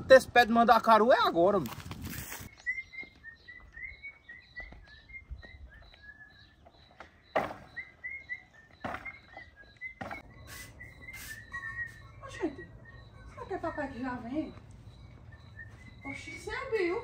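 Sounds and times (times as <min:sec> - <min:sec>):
bird chirping: 0:02.4 - 0:17.0.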